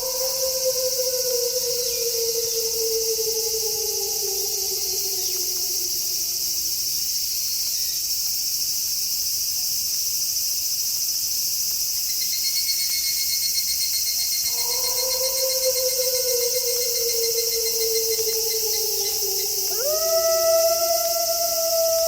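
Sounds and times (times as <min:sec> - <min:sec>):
wolf howling: 0:00.0 - 0:06.9, 0:14.5 - 0:22.0
pulsing cricket trill: 0:00.0 - 0:07.4, 0:12.2 - 0:22.0
night insects chirping: 0:00.0 - 0:22.0.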